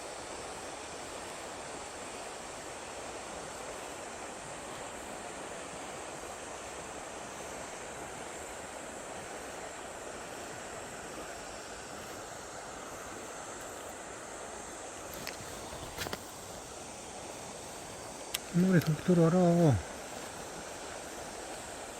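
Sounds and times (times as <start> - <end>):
river water rushing: 0.0 - 21.9.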